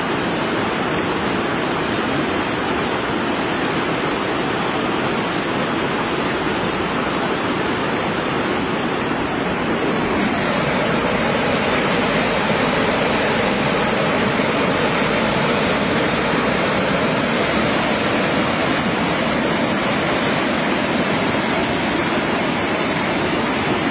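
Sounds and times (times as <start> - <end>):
steady rushing noise: 0.0 - 23.9.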